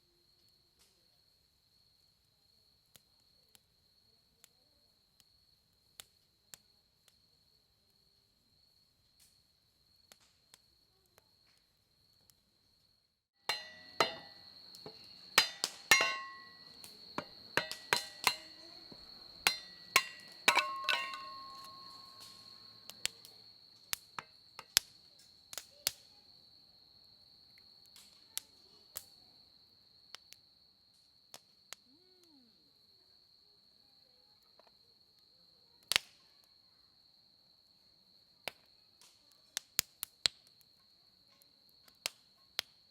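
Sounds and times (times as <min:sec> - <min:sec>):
insects trilling: 0:00.0 - 0:35.8
campfire crackling and popping: 0:02.0 - 0:26.2, 0:27.5 - 0:29.2, 0:35.8 - 0:36.2, 0:38.4 - 0:40.8, 0:41.4 - 0:42.9.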